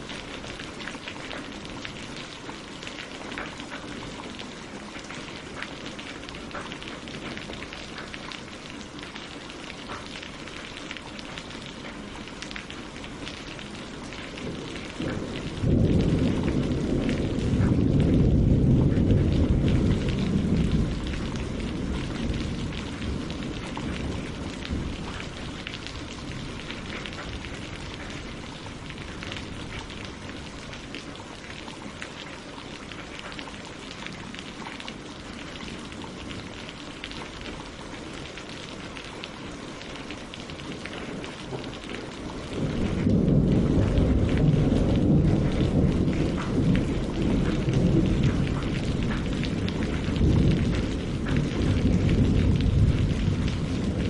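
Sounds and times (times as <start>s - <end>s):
rain on leaves and water: 0.0s - 54.0s
thunder rumbling: 11.4s - 54.0s.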